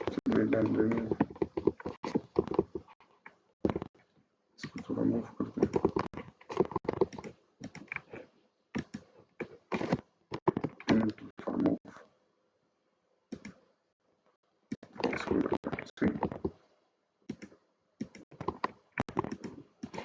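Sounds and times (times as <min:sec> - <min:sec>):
computer keyboard typing: 0:00.0 - 0:03.0, 0:05.6 - 0:08.1, 0:10.4 - 0:11.2, 0:17.3 - 0:20.0
person speaking: 0:00.0 - 0:03.0, 0:04.6 - 0:08.1, 0:09.8 - 0:12.0, 0:14.8 - 0:16.6.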